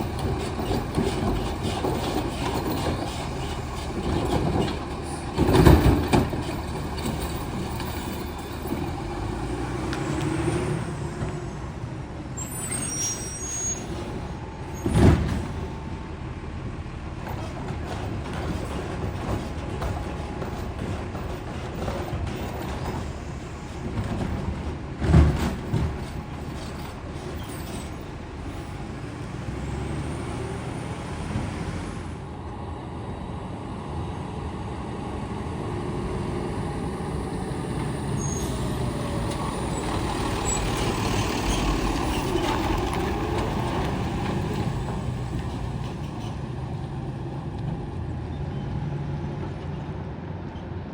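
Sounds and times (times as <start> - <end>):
garbage truck running: 0.0 - 50.9.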